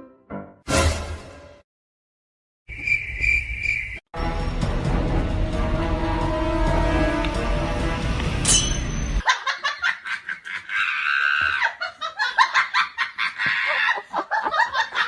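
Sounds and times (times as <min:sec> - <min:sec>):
music: 0:00.0 - 0:01.6, 0:04.1 - 0:09.2
person laughing hard: 0:09.2 - 0:15.0.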